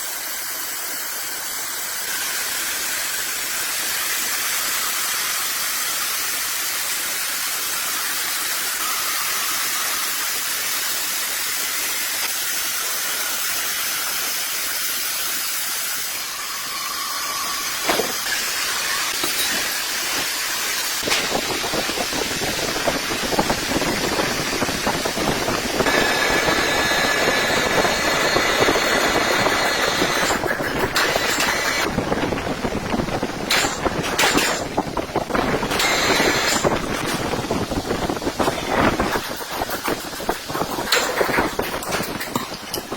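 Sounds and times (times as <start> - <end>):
sawmill machinery cutting wood: 0.2 - 42.9
machine whine: 8.6 - 12.2, 16.0 - 42.9.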